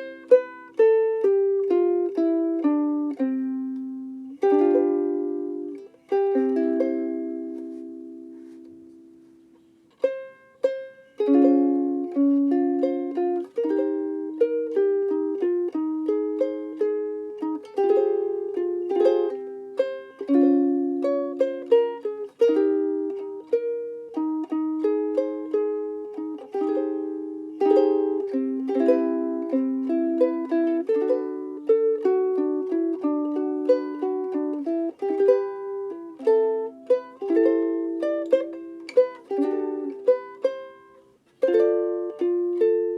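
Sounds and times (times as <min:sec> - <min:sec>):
ukulele picked and strummed: 0:00.0 - 0:42.9.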